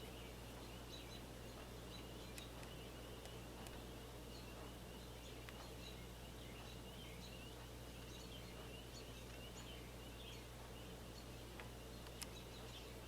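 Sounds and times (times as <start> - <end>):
soft high bird chirps: 0.0 - 13.0
steady low hum: 0.0 - 13.0.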